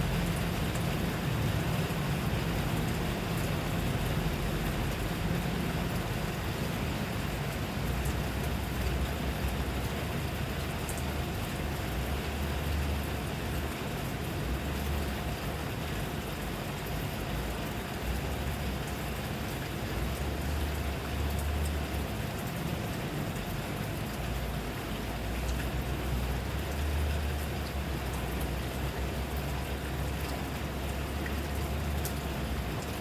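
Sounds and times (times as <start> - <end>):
rain falling: 0.0 - 33.0
raindrop ticks: 7.5 - 12.8, 17.6 - 33.0.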